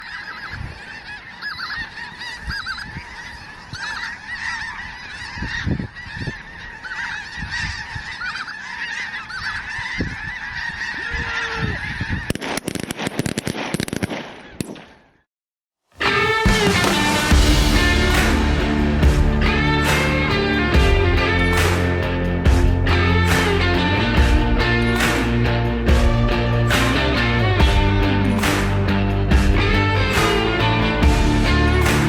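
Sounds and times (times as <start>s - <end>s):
geese honking: 0.0s - 12.4s.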